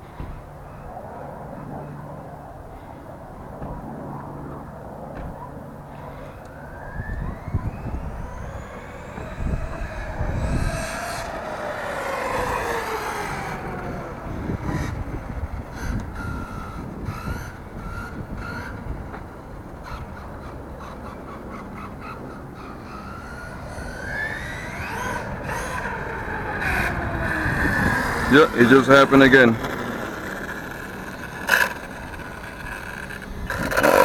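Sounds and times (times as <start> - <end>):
rc truck motor whining: 4.2 - 34.0.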